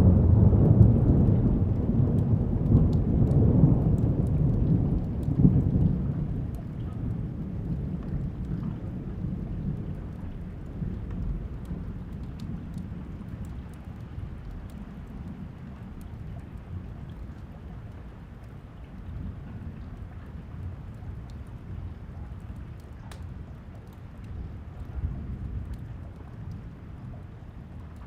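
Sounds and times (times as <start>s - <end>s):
thunder rumbling: 0.0s - 17.0s
steady rain: 0.0s - 28.0s
water drip ticks: 0.0s - 28.0s.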